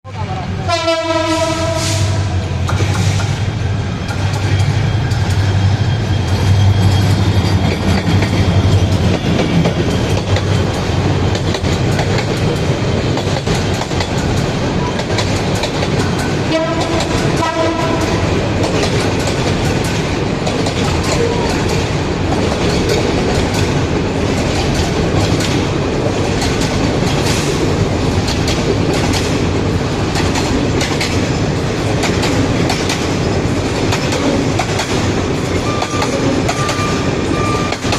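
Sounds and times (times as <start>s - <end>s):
train rumbling on rails: 0.0s - 37.9s
train horn blast: 0.5s - 2.6s, 16.4s - 18.3s
wheels clicking over rail joints: 4.0s - 37.9s.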